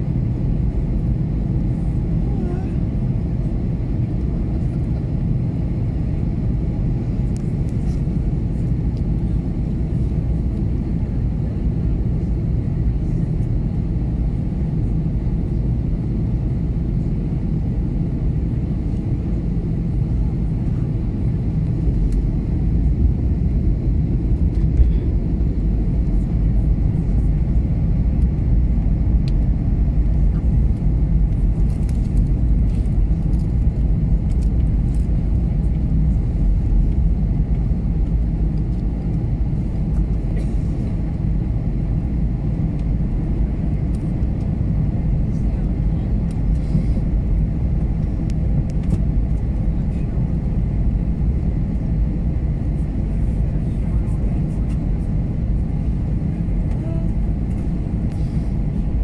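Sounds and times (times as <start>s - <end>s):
airliner cabin engine rumble: 0.0s - 59.0s
airflow noise: 55.6s - 59.0s.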